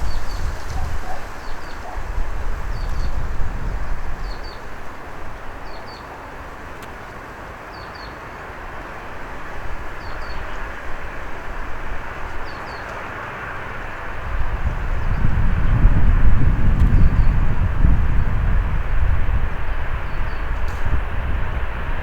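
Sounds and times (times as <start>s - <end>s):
wind buffeting microphone: 0.0s - 6.6s, 13.8s - 22.0s.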